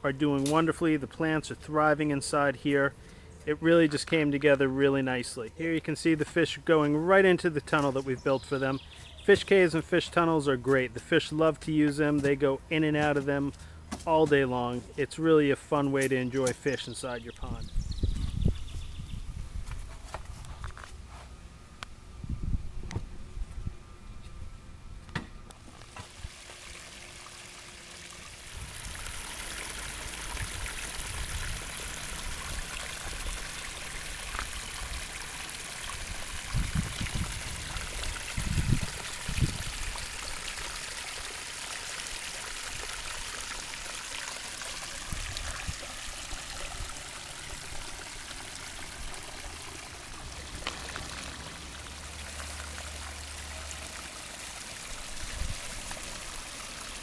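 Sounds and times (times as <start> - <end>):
water splashing into pond: 25.8 - 57.0.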